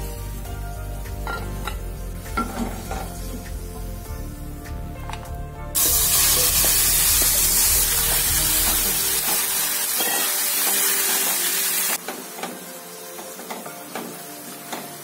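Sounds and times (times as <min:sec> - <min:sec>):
food sizzling in a pan: 0:00.0 - 0:04.2, 0:05.8 - 0:15.0.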